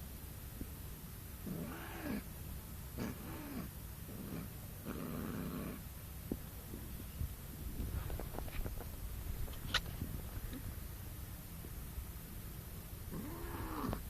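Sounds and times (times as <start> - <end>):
cat growling call: 1.5 - 2.2, 3.0 - 5.8, 13.1 - 14.0.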